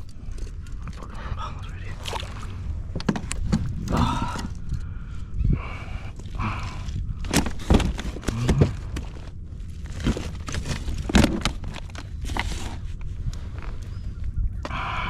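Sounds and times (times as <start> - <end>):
steady low rumble: 0.0 - 15.0
knocks and clatter on boat: 2.0 - 4.6.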